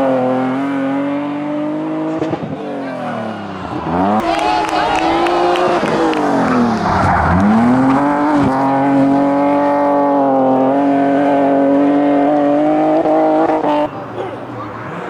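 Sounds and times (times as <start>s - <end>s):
race car engine at high revs: 0.0s - 15.0s
tyre noise: 2.3s - 10.3s.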